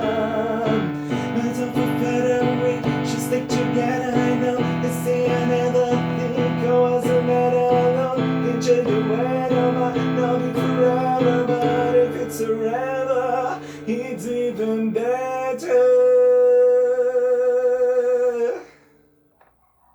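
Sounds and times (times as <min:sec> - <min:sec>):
held melody line: 0:00.0 - 0:15.6.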